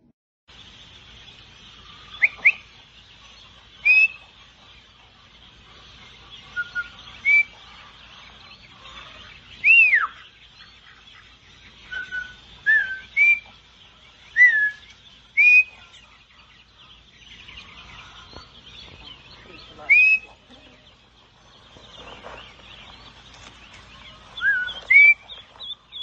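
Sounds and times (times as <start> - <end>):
bird whistling: 2.1 - 2.7, 3.8 - 4.3, 6.5 - 7.8, 9.6 - 10.4, 11.8 - 13.6, 14.3 - 16.0, 18.8 - 20.8, 24.4 - 26.0.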